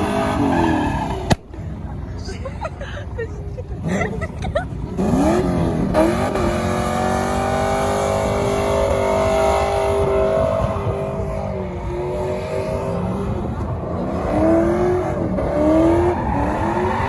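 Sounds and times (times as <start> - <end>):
vehicle engine revving: 3.8 - 17.0.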